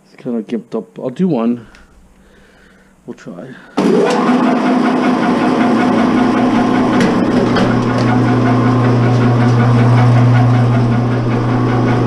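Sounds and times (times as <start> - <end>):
wire stripping machine humming: 3.6 - 12.0.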